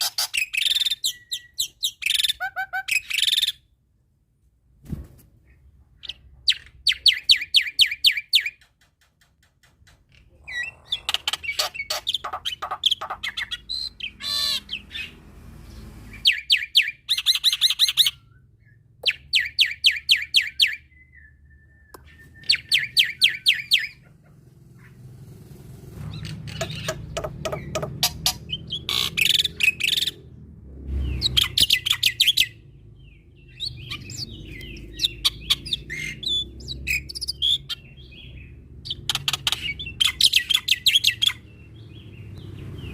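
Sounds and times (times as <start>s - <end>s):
bird singing rattling notes: 26.0s - 30.3s.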